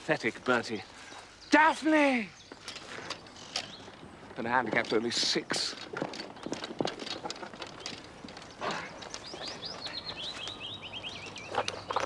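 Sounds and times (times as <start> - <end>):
songbird trilling high chirps: 9.0 - 12.0.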